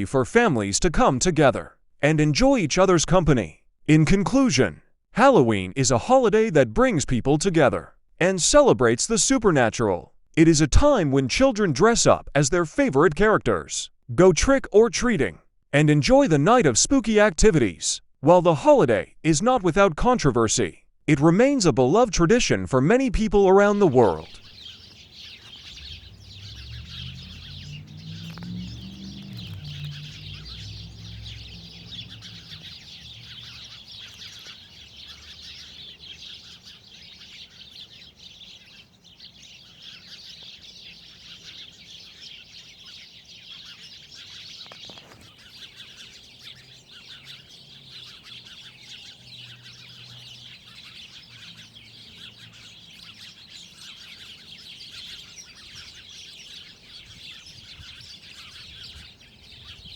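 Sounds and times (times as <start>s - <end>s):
small birds chirping chorus: 0.0s - 3.5s, 23.5s - 59.9s.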